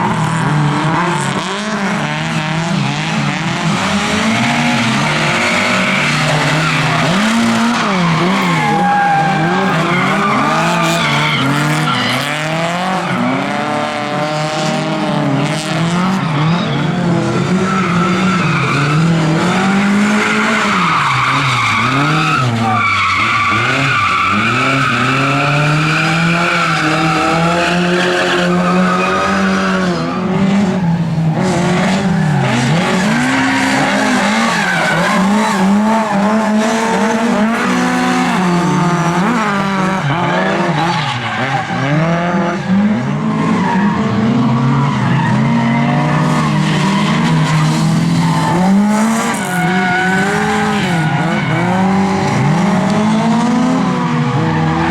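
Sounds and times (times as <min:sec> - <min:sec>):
race car engines revving: 0:00.0 - 0:54.9
tyres squealing: 0:04.5 - 0:13.3.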